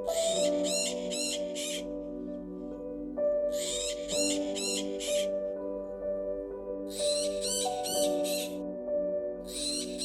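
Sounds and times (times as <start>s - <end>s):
music of held chords: 0.0s - 10.0s
macaw squawks: 0.1s - 1.9s, 3.5s - 5.3s, 6.9s - 8.6s, 9.5s - 10.0s.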